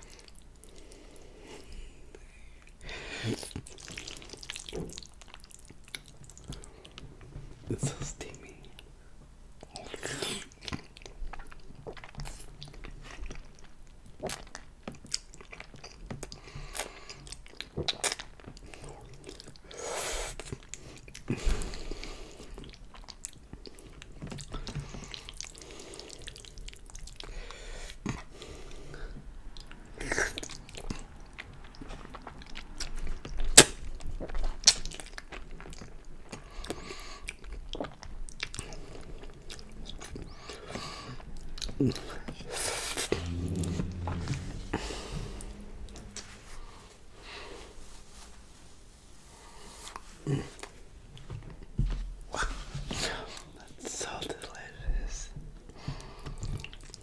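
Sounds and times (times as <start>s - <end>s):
man chewing and smacking: 3.3s - 7.5s, 9.6s - 19.7s, 22.3s - 28.4s, 29.1s - 44.0s, 55.7s - 57.0s.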